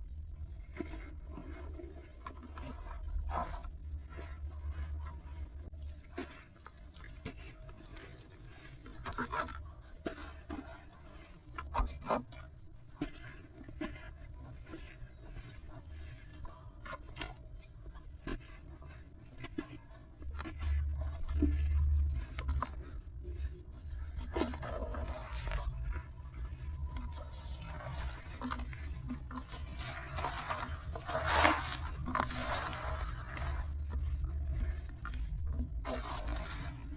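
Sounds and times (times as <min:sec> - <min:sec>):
material crumbling and crunching: 0:23.2 - 0:36.9.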